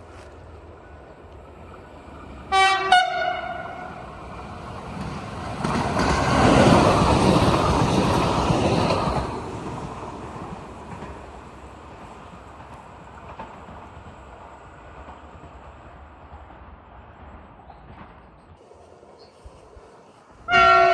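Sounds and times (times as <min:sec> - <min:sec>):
train rumbling past: 0:00.0 - 0:20.9
train horn blasts: 0:02.5 - 0:04.0, 0:20.5 - 0:20.9.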